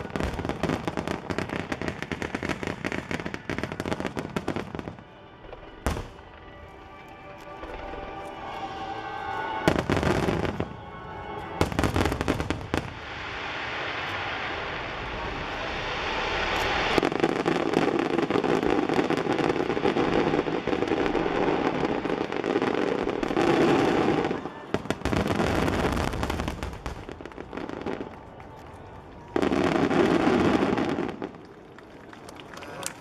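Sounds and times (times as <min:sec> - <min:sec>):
firework crackling: 0:00.0 - 0:07.0, 0:11.4 - 0:33.0.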